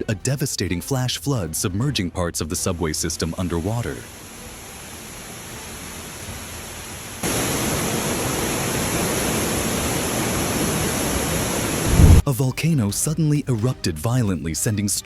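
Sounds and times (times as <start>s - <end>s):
floodwater rushing: 3.4s - 12.2s.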